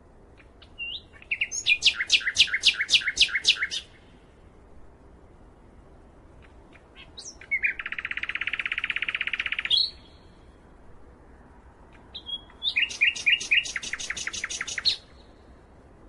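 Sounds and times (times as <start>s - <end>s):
songbirds singing: 0.3s - 4.3s, 6.3s - 10.7s, 11.8s - 15.6s.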